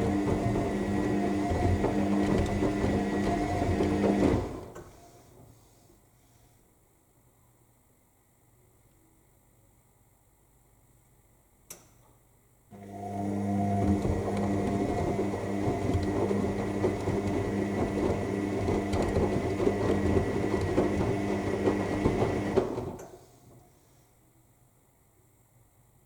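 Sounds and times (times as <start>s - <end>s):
washing machine drum turning: 0.0s - 4.6s, 13.0s - 23.0s.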